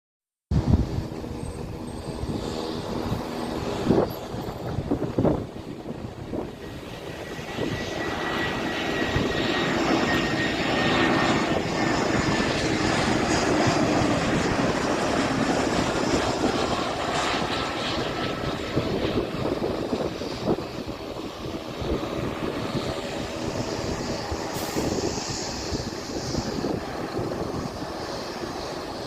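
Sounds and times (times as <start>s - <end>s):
airliner engines passing: 0.5s - 29.0s.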